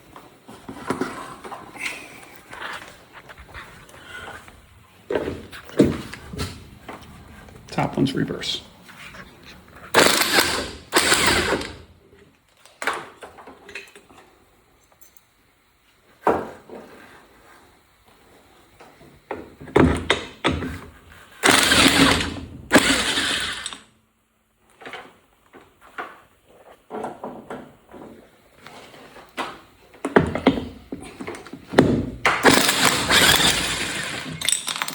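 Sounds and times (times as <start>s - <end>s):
impact wrench running: 9.9s - 11.9s, 21.4s - 23.8s, 32.3s - 34.9s.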